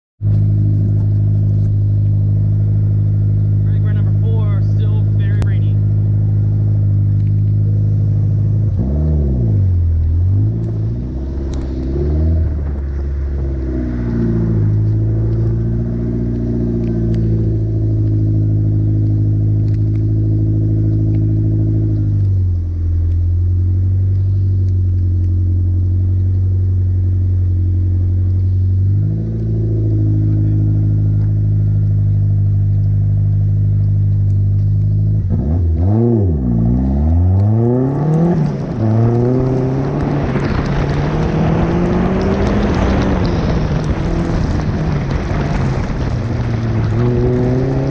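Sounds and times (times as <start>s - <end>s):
car engine idling: 0.2s - 36.6s
car engine revving: 0.2s - 47.9s.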